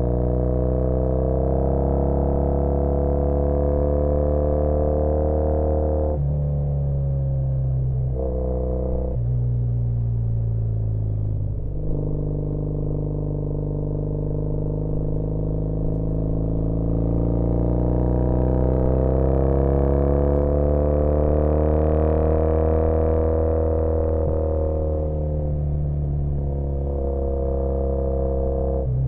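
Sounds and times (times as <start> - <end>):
motorcycle engine accelerating: 0.0 - 7.1, 10.3 - 29.0.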